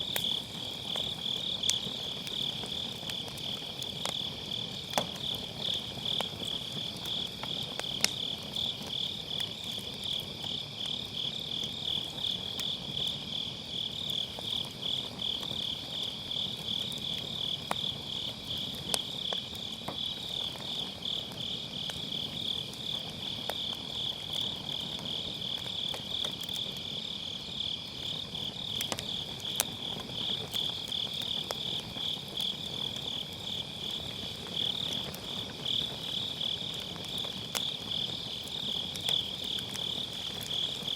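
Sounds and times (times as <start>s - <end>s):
crickets chirping: 0.0s - 40.9s
fire crackling and popping: 0.0s - 40.9s.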